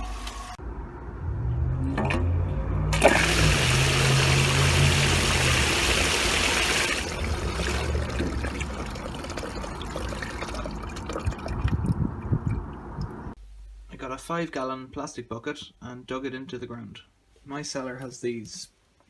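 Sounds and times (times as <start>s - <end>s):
water rushing and splashing: 2.9s - 11.8s
pump motor hum: 2.9s - 13.2s.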